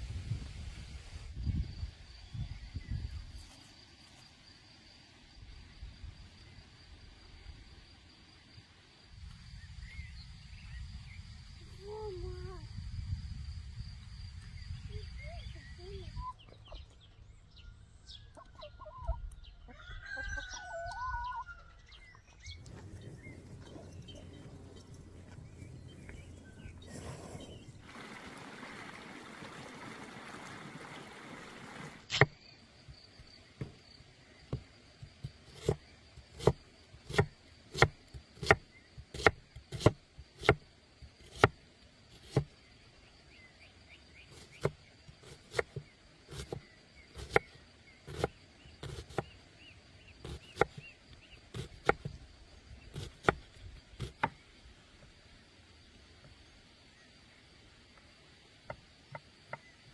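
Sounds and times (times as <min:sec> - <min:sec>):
steady hiss: 0:26.3 - 0:32.1.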